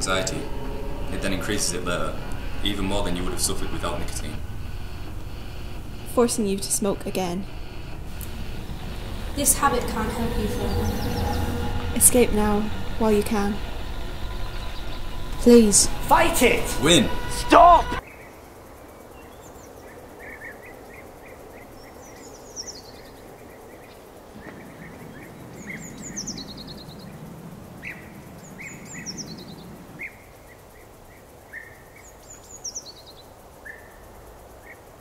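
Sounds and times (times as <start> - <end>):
low rumble: 0.0 - 18.0
steady background hiss: 0.0 - 35.0.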